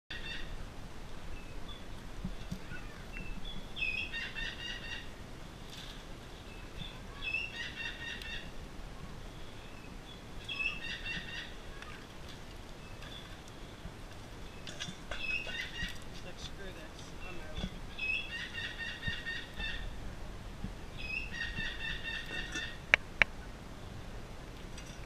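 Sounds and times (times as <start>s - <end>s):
bird trilling call: 17.9s - 19.9s, 21.0s - 23.2s.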